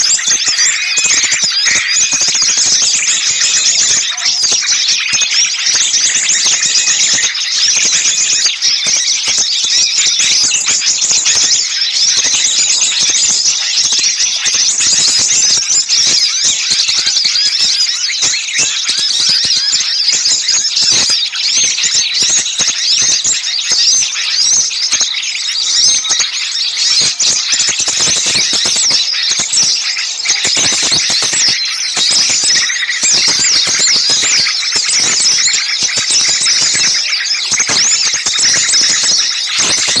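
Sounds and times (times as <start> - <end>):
songbirds chirping and trilling: 0.0 - 40.0.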